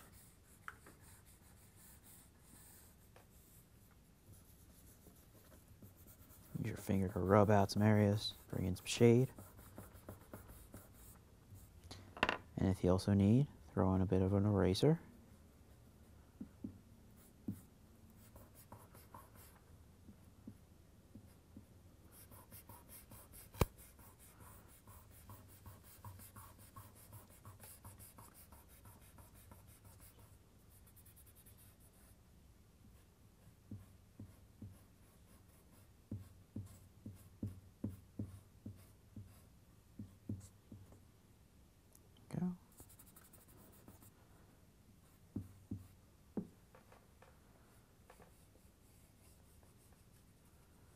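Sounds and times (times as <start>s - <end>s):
pencil rubbing on paper: 0.0s - 3.7s, 4.3s - 11.7s, 17.2s - 19.6s, 22.1s - 32.1s, 42.7s - 44.1s.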